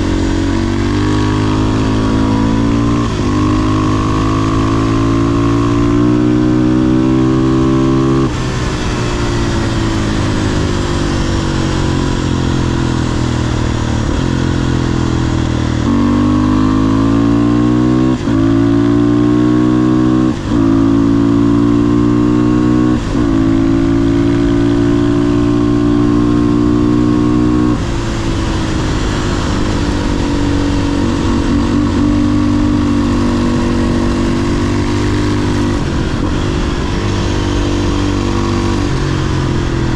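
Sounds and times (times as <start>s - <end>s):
motorcycle engine accelerating: 0.0s - 39.9s
wind rush: 22.4s - 39.9s.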